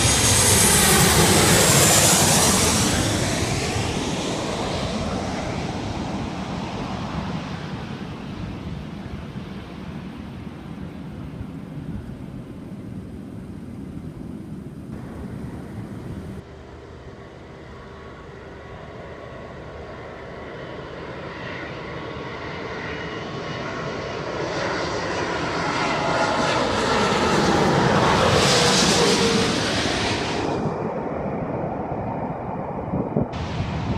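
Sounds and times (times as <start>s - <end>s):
wind rumbling on microphone: 0.0s - 16.4s, 27.3s - 33.9s
jet engines whining: 0.0s - 33.9s.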